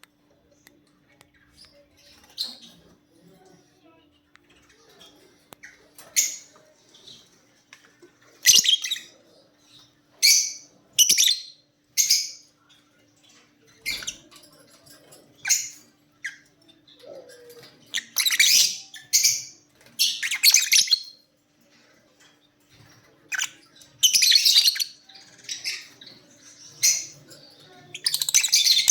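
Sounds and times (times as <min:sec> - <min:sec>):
birds squawking: 0:23.3 - 0:28.9.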